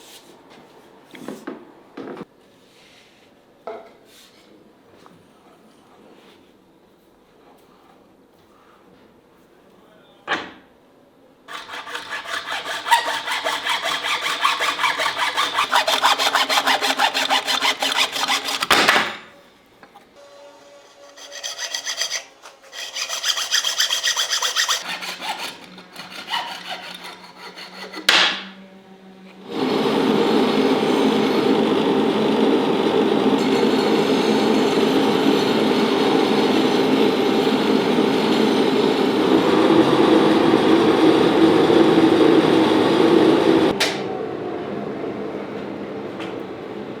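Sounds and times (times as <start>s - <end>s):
hand tool rasping wood: 11.5s - 19.1s, 21.0s - 28.3s.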